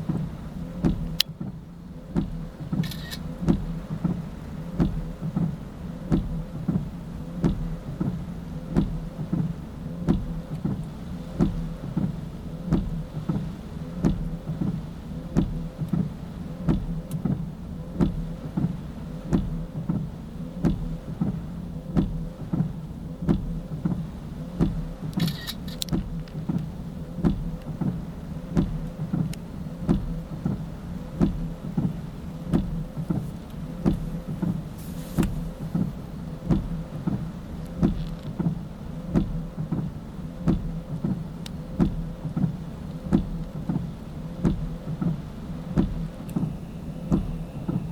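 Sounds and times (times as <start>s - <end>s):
even mechanical clicking: 0.0s - 4.2s, 12.7s - 47.9s
vehicle engine humming: 0.0s - 47.9s
short hiss: 2.8s - 3.3s, 25.2s - 25.9s, 34.6s - 35.9s.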